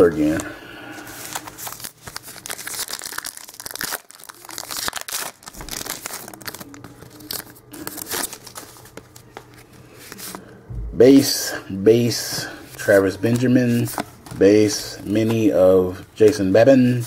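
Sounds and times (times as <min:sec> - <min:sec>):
cards being handled: 0:00.0 - 0:10.5, 0:12.3 - 0:16.5
wrapper tearing and crinkling: 0:01.1 - 0:09.2.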